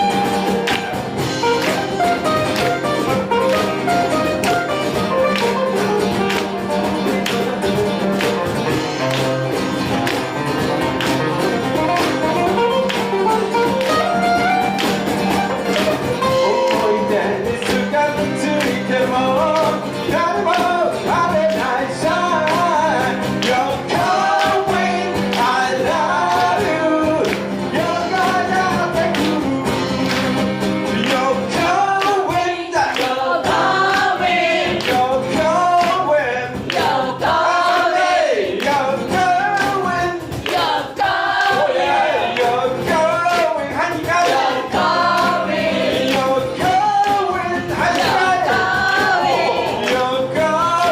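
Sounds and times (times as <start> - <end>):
guitar accompaniment: 0.0 - 50.9
person singing: 16.2 - 36.6, 41.5 - 50.9.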